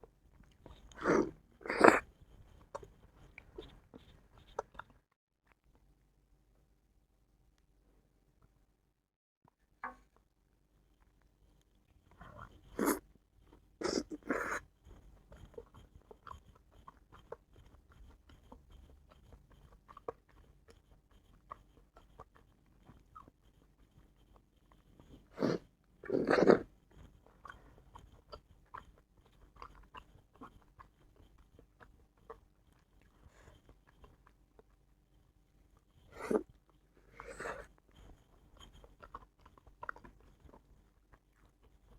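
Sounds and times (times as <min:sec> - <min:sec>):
person chewing wetly: 0:00.3 - 0:05.8, 0:11.0 - 0:41.9.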